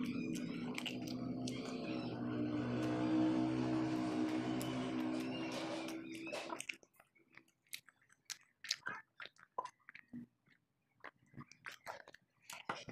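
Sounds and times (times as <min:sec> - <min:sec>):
background music: 0:00.0 - 0:06.6
child chewing: 0:00.0 - 0:12.9.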